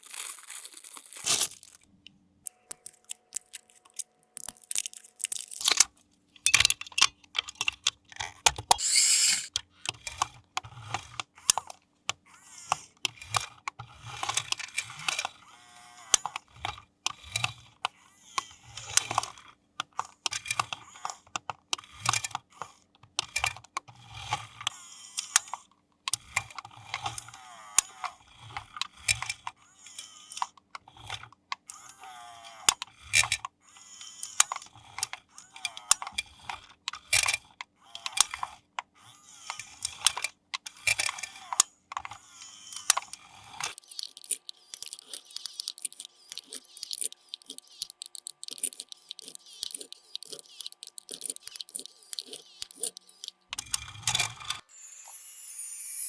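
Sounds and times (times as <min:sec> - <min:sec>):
plastic packaging clicks and crinkling: 0:00.0 - 0:01.9, 0:02.5 - 0:05.8, 0:43.7 - 0:53.4
evenly spaced light clicks: 0:43.7 - 0:53.3.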